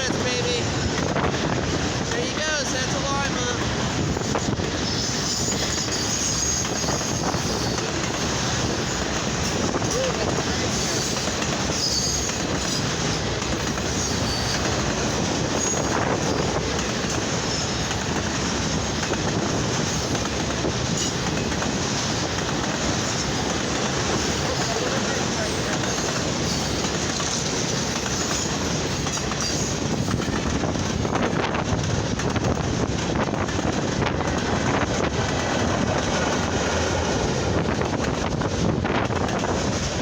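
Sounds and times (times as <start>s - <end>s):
freight train wheels rumbling: 0.0s - 40.0s
high wheel squeals: 4.8s - 9.6s, 10.7s - 14.8s, 15.5s - 16.6s, 24.1s - 27.0s, 27.7s - 30.3s.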